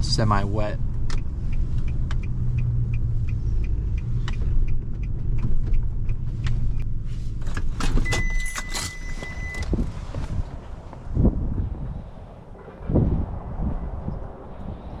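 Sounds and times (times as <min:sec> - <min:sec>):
light ticking: 0:00.8 - 0:06.9.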